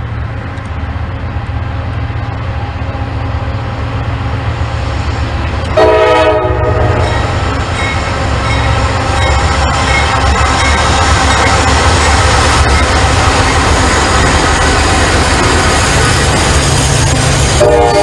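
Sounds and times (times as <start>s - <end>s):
diesel locomotive rumbling: 0.0s - 18.0s
train horn blast: 5.7s - 7.4s, 17.5s - 18.0s.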